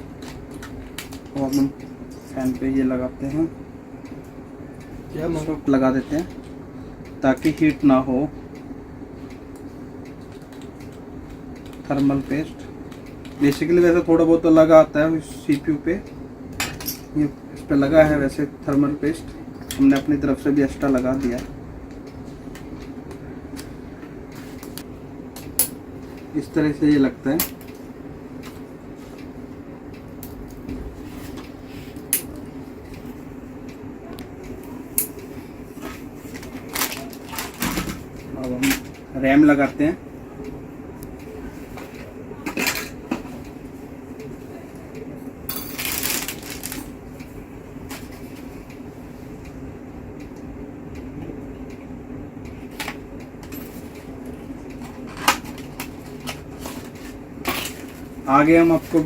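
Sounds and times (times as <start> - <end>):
steady low hum: 0.0 - 59.0
clicks and clatter of small parts: 45.5 - 46.9.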